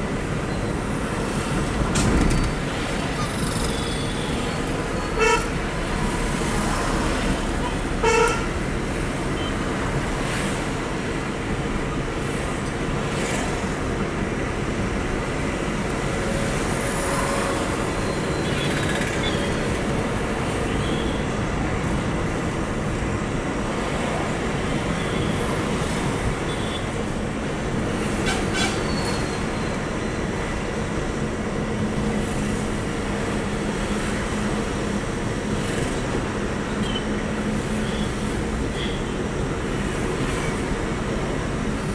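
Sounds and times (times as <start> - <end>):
truck engine rumble: 0.0 - 5.2
road noise: 0.0 - 41.9.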